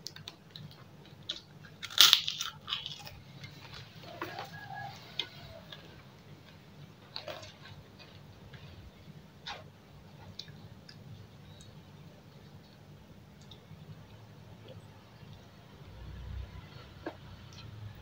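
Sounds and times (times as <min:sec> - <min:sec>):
cracker crunching: 0:00.0 - 0:08.7.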